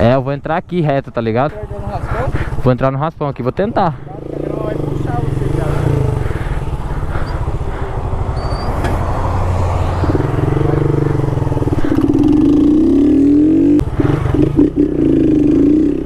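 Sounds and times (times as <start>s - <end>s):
motorcycle engine accelerating: 3.9s - 16.0s.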